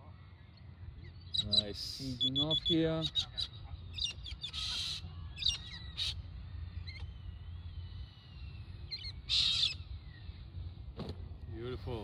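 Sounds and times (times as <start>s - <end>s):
birds squawking harshly: 1.1s - 7.0s, 8.9s - 11.3s
bird chirps and whistles: 1.3s - 6.1s, 6.8s - 9.9s
low steady rumble: 3.5s - 12.0s.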